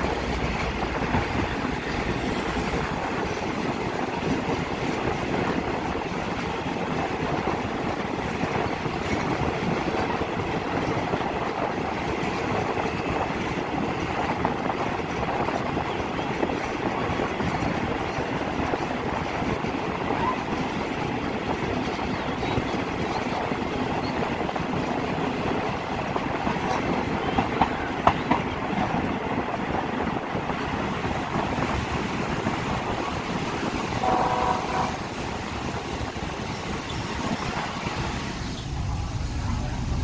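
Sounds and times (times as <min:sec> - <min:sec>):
rushing air: 0:00.0 - 0:08.9, 0:34.8 - 0:40.0
train wheels rumbling on rails: 0:00.0 - 0:40.0
train horn blast: 0:33.9 - 0:35.2.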